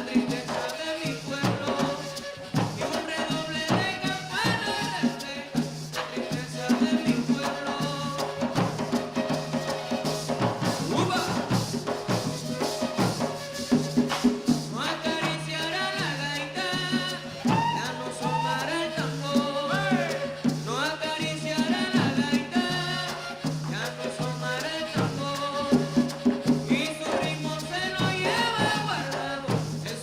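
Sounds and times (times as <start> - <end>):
drums: 0.0 - 30.0
maraca keeping steady beat: 0.0 - 30.0
cane duct flutes playing melody: 1.1 - 5.2, 8.2 - 15.5, 17.2 - 21.2, 22.1 - 27.3.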